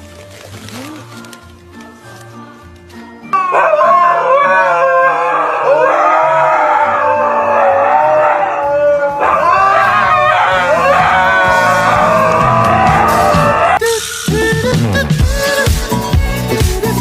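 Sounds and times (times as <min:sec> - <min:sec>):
dog howling: 0:03.3 - 0:13.8.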